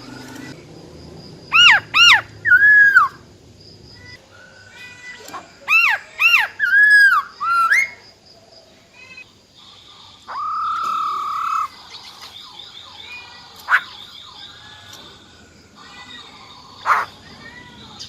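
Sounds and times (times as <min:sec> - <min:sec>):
bird whistled calls: 0:01.5 - 0:03.2, 0:05.8 - 0:08.0
faint bird chirps: 0:01.5 - 0:03.3, 0:03.9 - 0:18.0.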